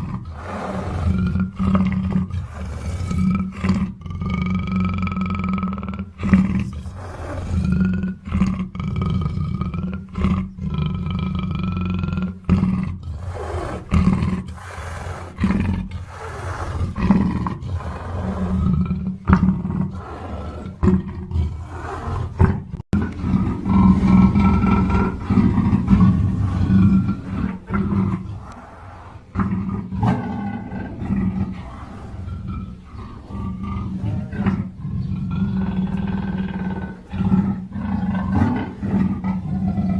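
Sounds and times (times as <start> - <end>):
panther roaring: 0.0 - 5.0, 6.2 - 39.9.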